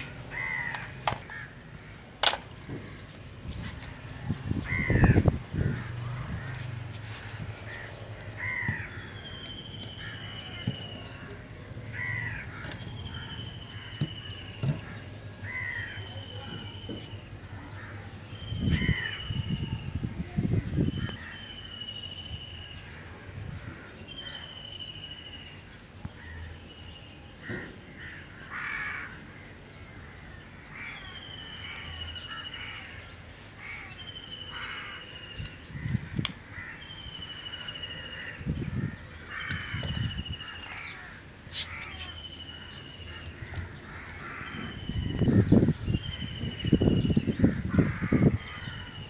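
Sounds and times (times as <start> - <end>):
crows cawing: 0.3 - 3.0, 4.6 - 6.7, 7.7 - 9.2, 9.9 - 16.3, 18.7 - 19.3, 27.4 - 46.3, 47.0 - 49.0.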